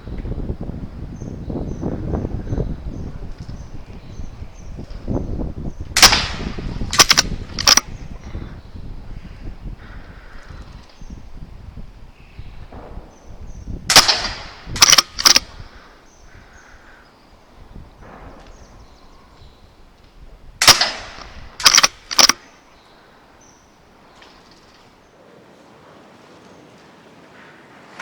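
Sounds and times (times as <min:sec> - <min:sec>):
air rifle shots: 0:05.9 - 0:08.4, 0:12.6 - 0:16.7, 0:20.6 - 0:22.7
rifle bolt clicks: 0:06.0 - 0:08.0, 0:13.9 - 0:15.6, 0:20.6 - 0:22.5.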